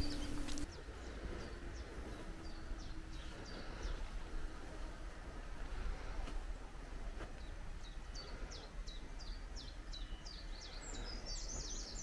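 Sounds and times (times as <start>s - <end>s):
bird chirping high: 0.0s - 4.1s.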